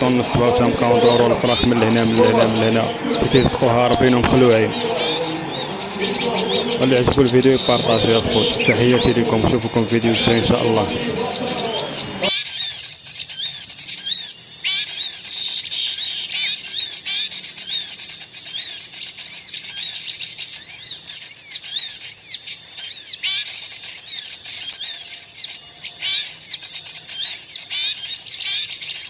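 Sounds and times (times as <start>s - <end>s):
songbirds chirping: 0.0s - 12.3s.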